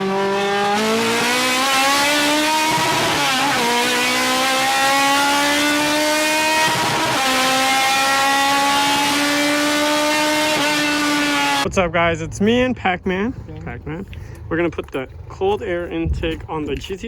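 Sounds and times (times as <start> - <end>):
car engine accelerating: 0.0 - 11.8.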